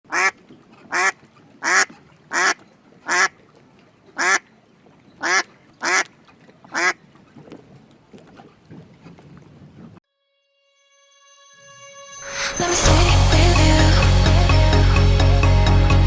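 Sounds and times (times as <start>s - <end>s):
duck-like quacking: 0.1s - 3.4s, 4.2s - 4.4s, 5.2s - 6.1s, 6.7s - 7.0s.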